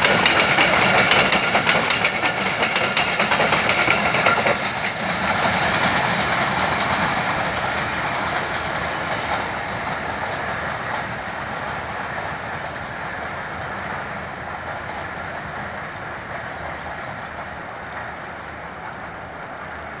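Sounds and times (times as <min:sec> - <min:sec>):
train wheels running on rails: 0:00.0 - 0:20.0.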